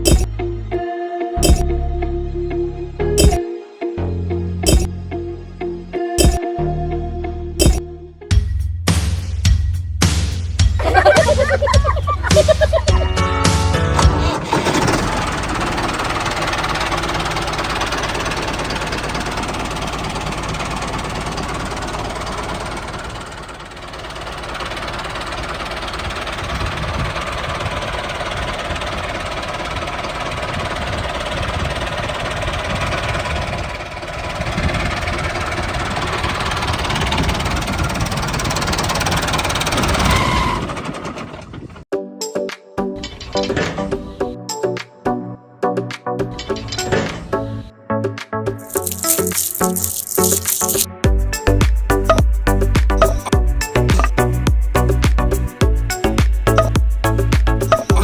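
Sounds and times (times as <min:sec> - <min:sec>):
tractor engine chugging: 0:00.0 - 0:00.4, 0:01.4 - 0:01.6, 0:04.6 - 0:04.9, 0:10.8 - 0:41.8, 0:48.6 - 0:58.0.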